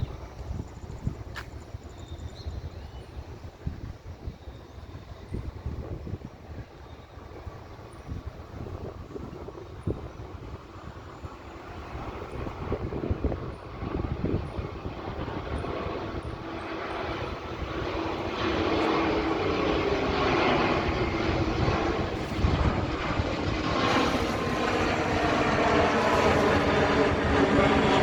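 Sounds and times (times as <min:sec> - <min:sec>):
jet engines rushing: 0:11.3 - 0:28.0.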